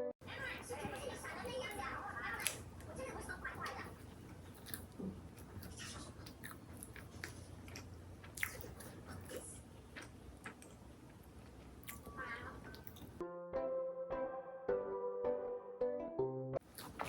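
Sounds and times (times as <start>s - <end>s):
person chewing and crunching food: 3.5s - 13.2s, 16.6s - 17.0s.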